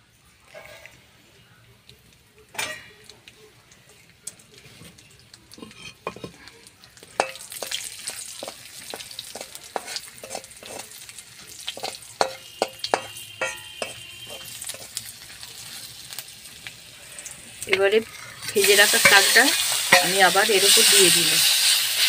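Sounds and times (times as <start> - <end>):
peanuts sizzling in oil: 0.2 - 22.0
spatula scraping and knocking wok: 0.5 - 1.0, 5.6 - 6.4, 7.1 - 16.3, 17.6 - 22.0.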